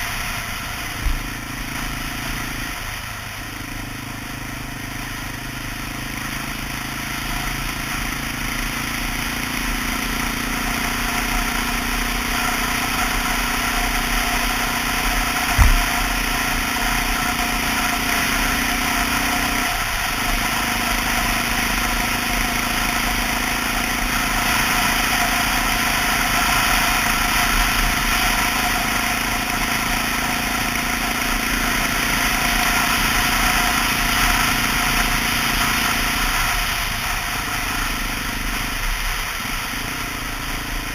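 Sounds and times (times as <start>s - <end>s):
motorcycle engine running: 0.0s - 40.9s
low thump: 15.5s - 16.2s.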